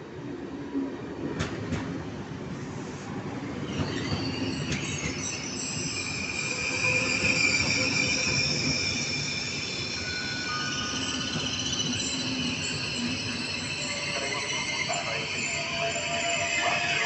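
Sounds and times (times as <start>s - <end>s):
electric train rumbling: 0.0s - 17.0s
train wheels squealing: 3.5s - 17.0s.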